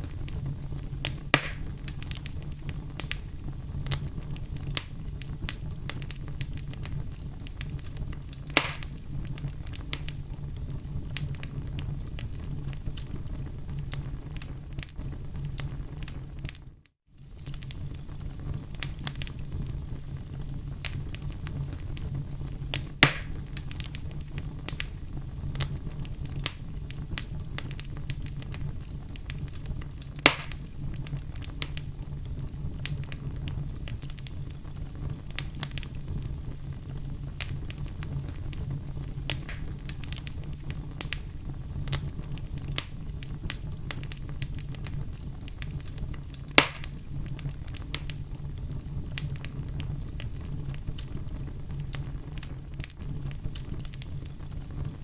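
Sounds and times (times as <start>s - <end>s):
fire popping: 0.0s - 55.0s
wood fire crackling: 0.0s - 55.0s.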